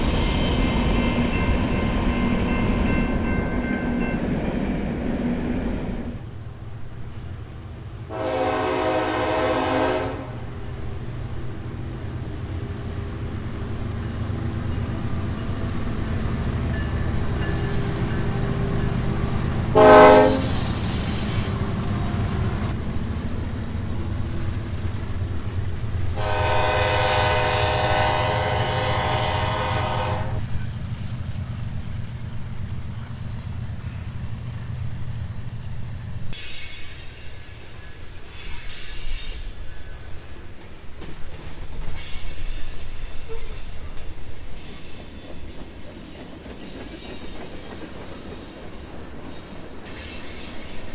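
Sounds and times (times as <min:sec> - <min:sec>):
moving train rumble: 0:00.0 - 0:50.9
locomotive air horn blasts: 0:08.1 - 0:10.4, 0:19.7 - 0:20.6, 0:26.2 - 0:30.4.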